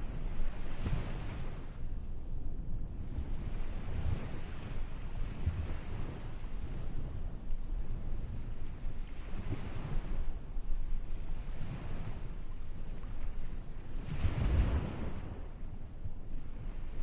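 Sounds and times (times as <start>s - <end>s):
wind rumble on microphone: 0.0s - 17.0s
ocean surf washing onto beach: 8.6s - 15.5s.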